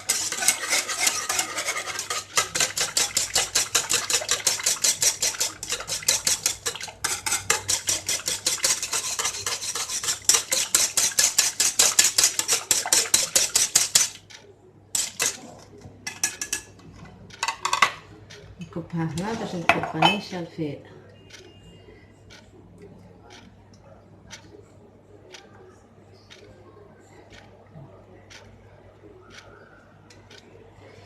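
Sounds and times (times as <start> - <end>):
utensil stirring and scraping a pot: 0.0 - 14.2, 15.0 - 16.8.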